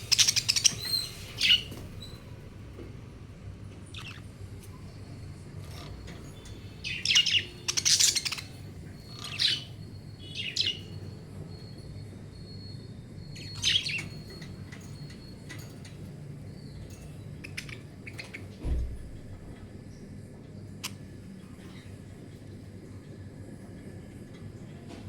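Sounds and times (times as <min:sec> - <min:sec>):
budgerigars chirping: 0:00.0 - 0:02.2, 0:04.0 - 0:04.2, 0:05.7 - 0:11.2, 0:13.4 - 0:14.6, 0:16.7 - 0:18.5.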